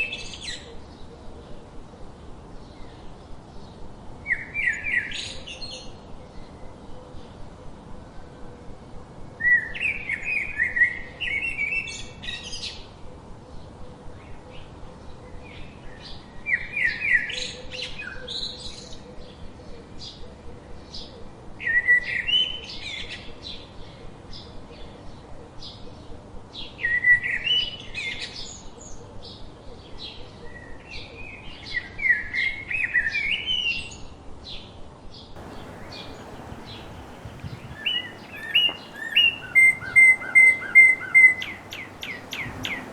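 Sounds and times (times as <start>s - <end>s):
songbird whistled song: 35.4s - 42.9s.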